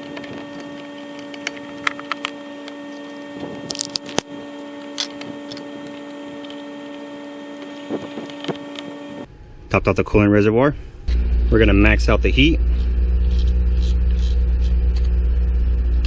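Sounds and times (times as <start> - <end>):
engine parts clicking: 0.0 - 7.0
steady hum: 0.0 - 16.0.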